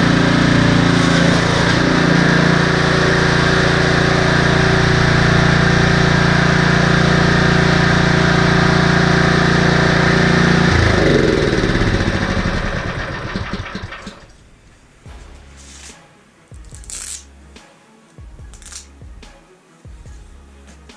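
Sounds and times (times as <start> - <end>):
snowblower engine running: 0.0 - 14.4.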